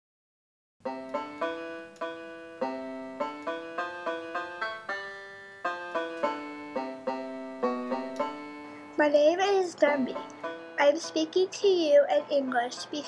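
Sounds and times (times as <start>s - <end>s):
plucked string instrument melody: 0.9s - 13.0s.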